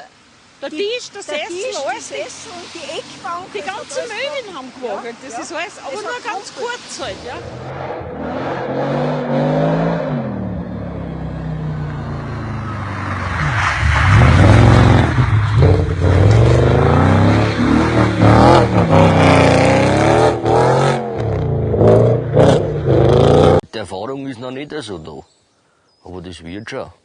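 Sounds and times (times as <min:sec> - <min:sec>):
car engine revving hard: 0:07.3 - 0:23.6.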